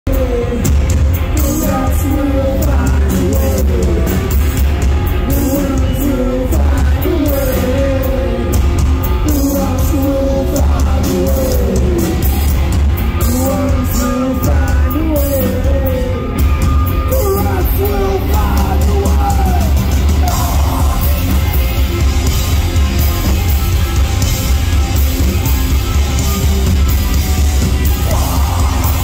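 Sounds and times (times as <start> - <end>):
person singing: 0.0 - 22.0, 27.8 - 29.0
metalcore band playing: 0.1 - 29.0.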